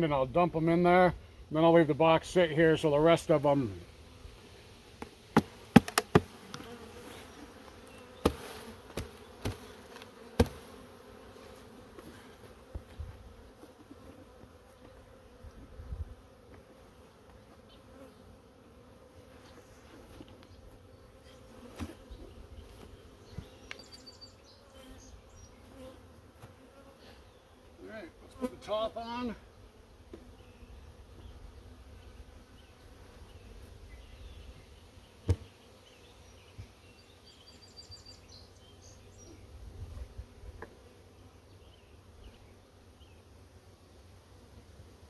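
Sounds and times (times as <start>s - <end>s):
bees buzzing: 0.8s - 44.8s
knocks on wooden box: 5.4s - 6.3s.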